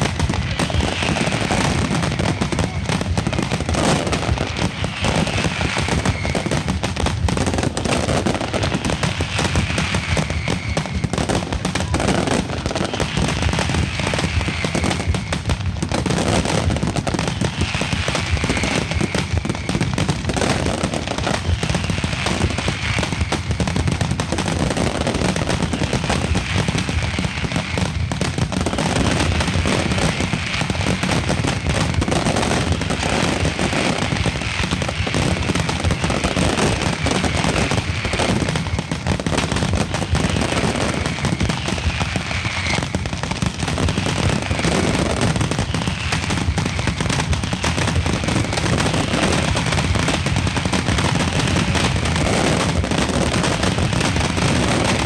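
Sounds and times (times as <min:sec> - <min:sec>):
firecracker bangs and crackling: 0:00.0 - 0:55.0
faint falling whistles: 0:03.6 - 0:06.8, 0:07.7 - 0:15.6, 0:17.2 - 0:21.0, 0:32.7 - 0:49.0.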